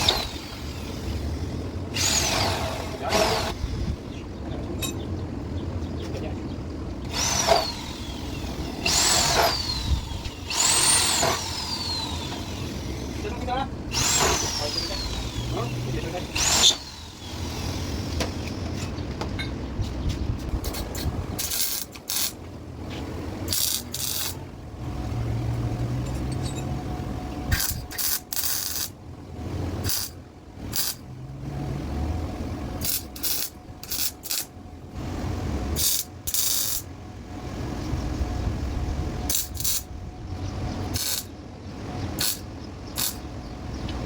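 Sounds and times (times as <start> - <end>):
welding arc crackling: 20.6 - 22.5, 23.4 - 24.6, 27.5 - 29.0, 29.8 - 31.1, 32.8 - 34.6, 35.8 - 36.9, 39.3 - 39.9, 40.9 - 41.3, 42.2 - 43.3.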